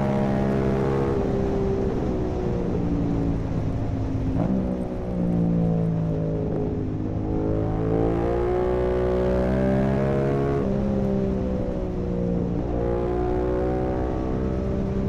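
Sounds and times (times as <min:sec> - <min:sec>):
motorcycle engine revving: 0:02.9 - 0:15.0.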